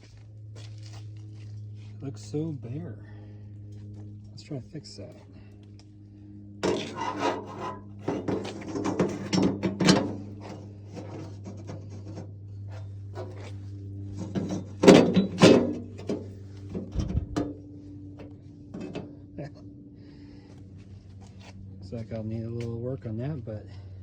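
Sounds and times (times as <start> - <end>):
steady low hum: 0.0 - 24.0
metal emblem clunking and rattling: 6.6 - 12.4, 14.1 - 17.6, 18.2 - 19.1.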